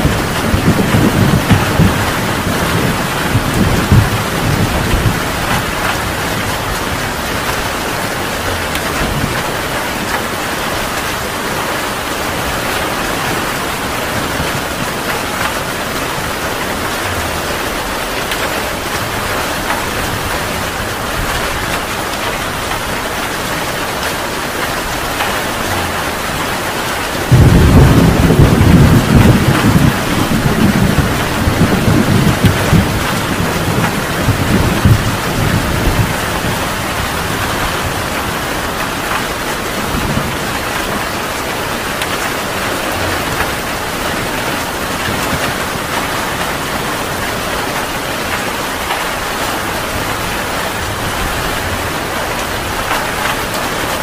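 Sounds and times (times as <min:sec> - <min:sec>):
rolling thunderclap: 0:00.0 - 0:10.9, 0:24.5 - 0:41.1
heavy rain: 0:00.0 - 0:54.0.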